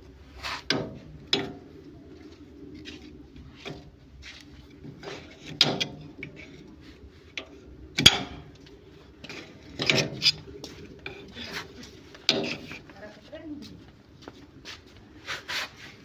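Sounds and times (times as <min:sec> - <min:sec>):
tools and parts clattering: 0:09.2 - 0:10.5.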